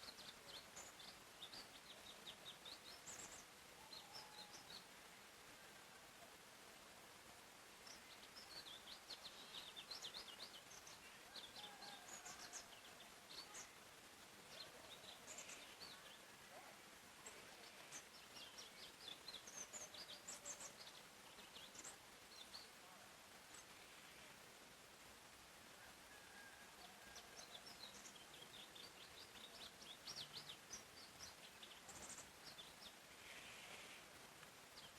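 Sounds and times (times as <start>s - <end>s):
soft steady hiss: 0.0s - 34.9s
songbirds chirping: 0.0s - 34.9s.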